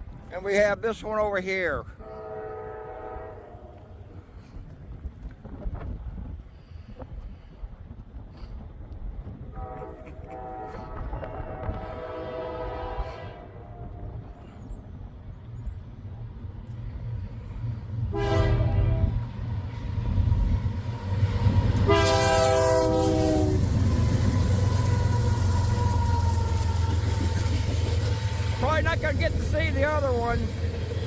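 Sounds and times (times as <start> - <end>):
train rumbling: 0.0 - 31.0
locomotive air horn blasts: 2.0 - 3.9, 9.5 - 14.4, 18.1 - 19.2, 21.7 - 28.6.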